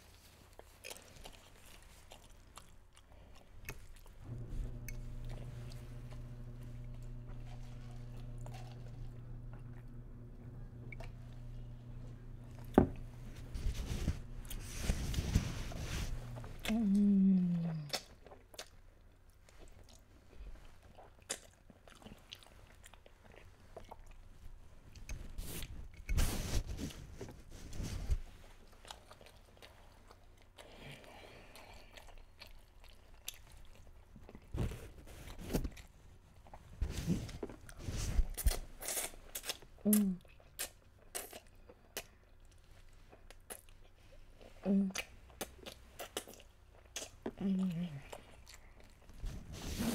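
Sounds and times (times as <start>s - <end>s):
person chewing pasta: 0.2s - 26.2s, 28.4s - 49.9s
low steady hum: 3.6s - 18.4s.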